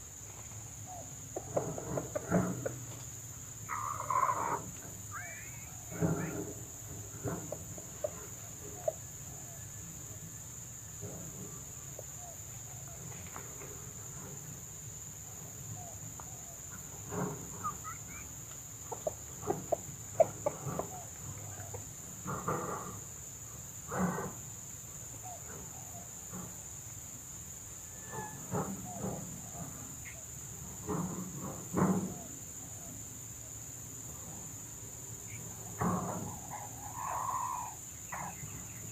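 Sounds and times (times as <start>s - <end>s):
high insect hum: 0.0s - 38.9s
junglefowl clucking calls: 0.9s - 10.0s, 16.2s - 22.8s, 28.0s - 30.4s, 35.2s - 38.9s.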